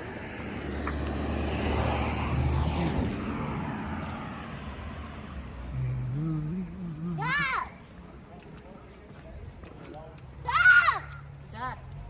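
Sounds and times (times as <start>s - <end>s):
motor vehicle passing by: 0.0s - 8.2s.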